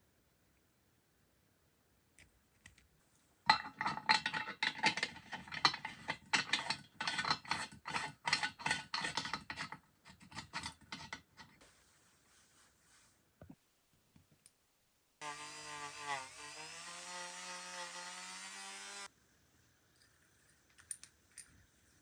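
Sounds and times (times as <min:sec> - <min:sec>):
metallic scraping and clinking: 0:03.5 - 0:11.6.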